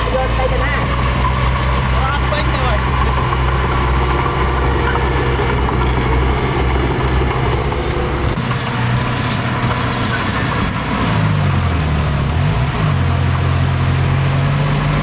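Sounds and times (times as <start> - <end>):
heavy diesel engine working: 0.0 - 15.0.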